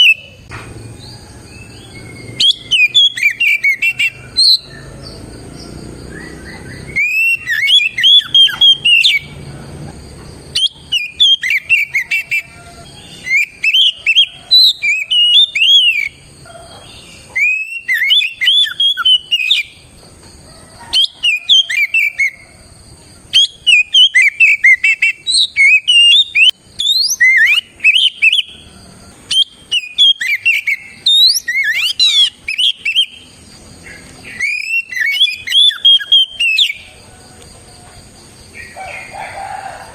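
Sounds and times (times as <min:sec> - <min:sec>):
bird whistling song: 0:00.0 - 0:09.5, 0:10.5 - 0:19.9, 0:20.9 - 0:22.5, 0:23.3 - 0:37.0.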